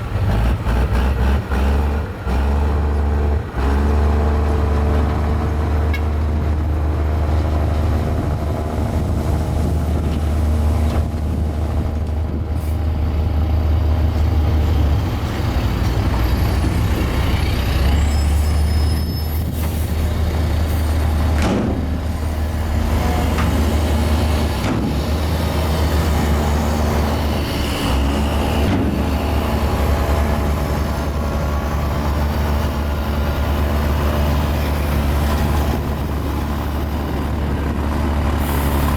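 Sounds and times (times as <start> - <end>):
bulldozer diesel engine running: 0.0 - 38.9
faint high squeaks: 18.0 - 19.6.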